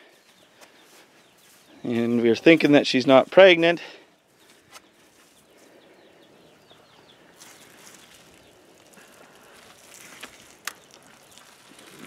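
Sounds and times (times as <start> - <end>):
small bird chirping: 0.0 - 3.5, 4.2 - 12.0
faint outdoor ambience: 0.0 - 12.0.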